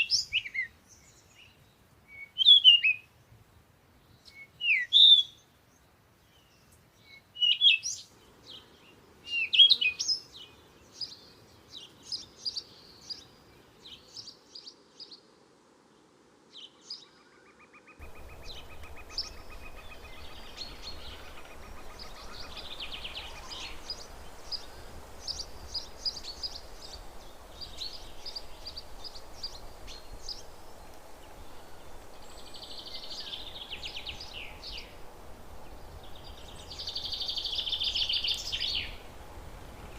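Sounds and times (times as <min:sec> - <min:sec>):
steady hiss with low hum: 0:00.0 - 0:16.7, 0:18.0 - 0:39.9
bird trill: 0:18.0 - 0:27.0
birds chirping and whistling: 0:18.0 - 0:30.4.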